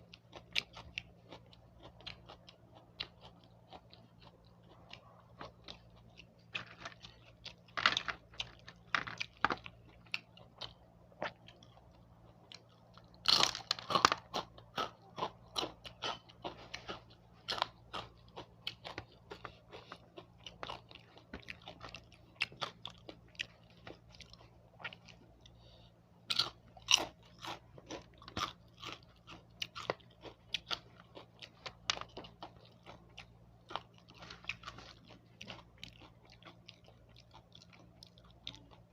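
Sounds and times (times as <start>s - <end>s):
faint low hum: 0.0s - 38.9s
person chewing crisp food: 0.0s - 38.9s.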